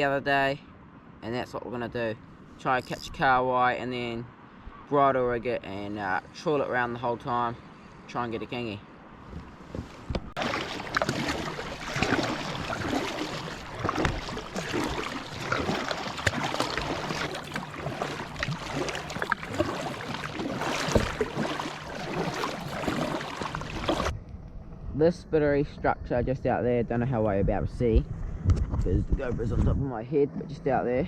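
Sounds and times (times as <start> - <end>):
water splashing around kayak: 9.4 - 24.2
wash of water noise: 10.4 - 24.1.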